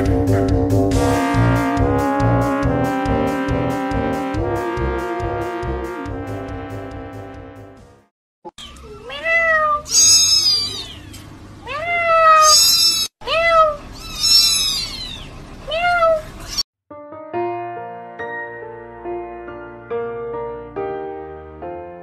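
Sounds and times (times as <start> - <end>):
kittens mewing: 8.9 - 16.6.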